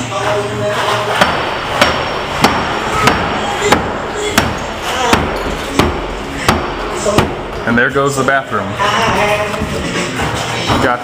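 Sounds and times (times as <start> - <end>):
hammer blows: 1.1 - 7.8.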